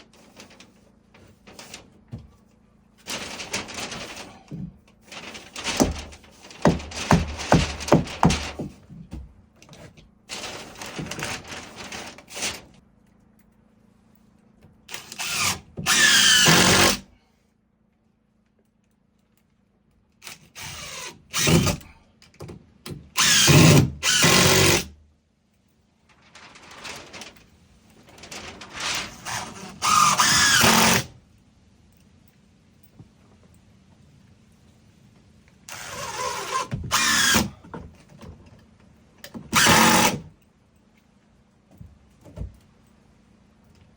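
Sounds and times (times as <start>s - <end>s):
knocks: 5.6s - 9.4s
power drill whining: 14.9s - 17.0s, 23.2s - 24.8s, 29.2s - 31.1s, 35.7s - 37.5s, 39.6s - 40.2s.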